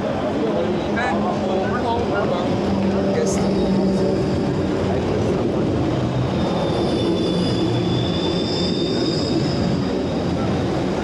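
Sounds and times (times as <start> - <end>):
tram rumbling past: 0.0 - 11.0
wheel squeal on rails: 2.5 - 5.0, 5.9 - 11.0.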